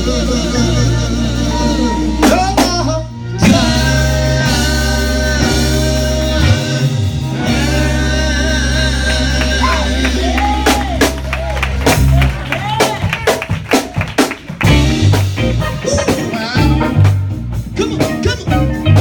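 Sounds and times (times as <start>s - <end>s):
person singing: 0.0s - 11.2s
guitar: 0.0s - 13.4s, 14.4s - 19.0s
gospel band music: 0.0s - 19.0s.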